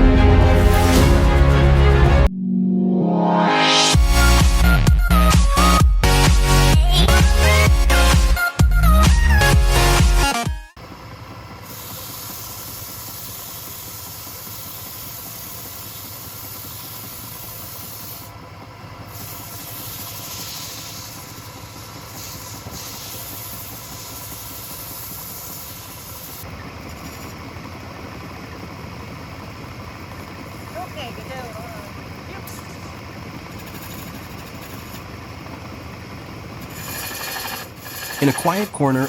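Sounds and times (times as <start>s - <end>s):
wood lathe humming: 10.8s - 39.0s.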